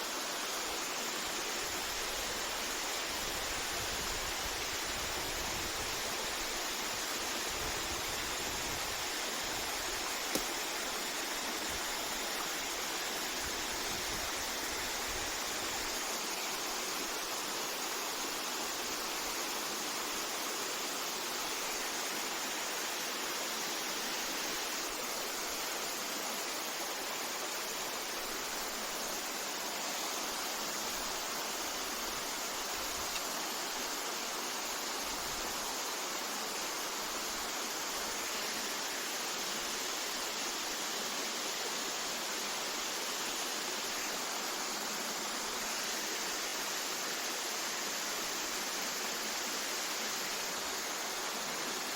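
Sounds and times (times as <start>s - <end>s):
brief click: 10.3s - 10.5s.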